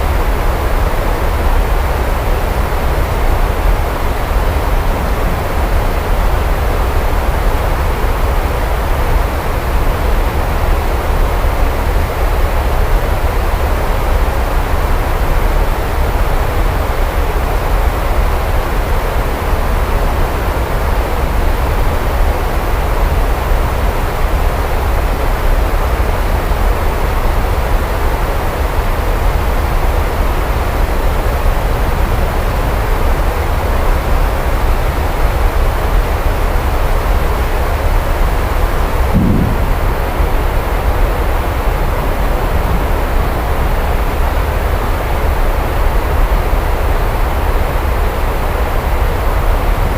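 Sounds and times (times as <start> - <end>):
rain falling: 0.0 - 49.9
low rumble of thunder: 38.8 - 44.1
deep low rumble: 39.0 - 41.6.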